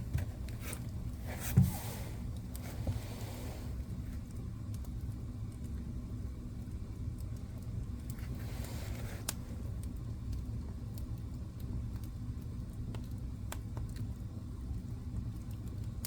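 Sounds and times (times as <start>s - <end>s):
fire crackles and pops: 0.0s - 16.0s
flames rumbling: 0.0s - 16.0s.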